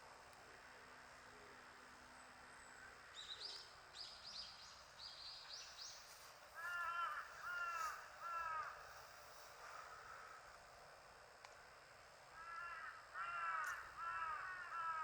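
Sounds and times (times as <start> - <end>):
faint steady hiss: 0.0 - 15.0
crow cawing: 6.6 - 8.8, 12.4 - 15.0.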